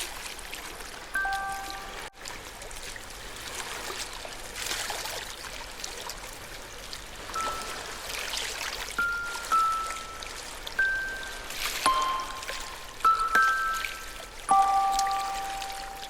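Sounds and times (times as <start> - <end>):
music box notes: 1.2 - 2.2, 7.4 - 8.3, 9.0 - 16.0
ocean waves washing: 1.2 - 4.6, 6.4 - 16.0.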